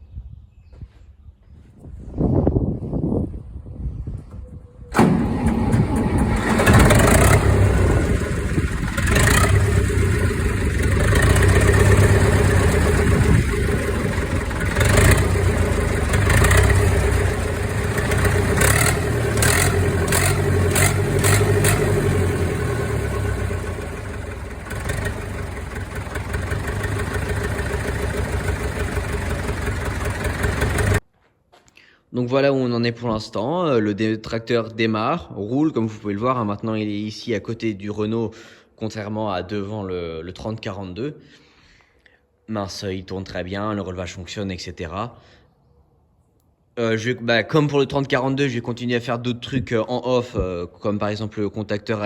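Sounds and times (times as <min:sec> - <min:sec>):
tractor diesel engine running: 0:05.0 - 0:31.0.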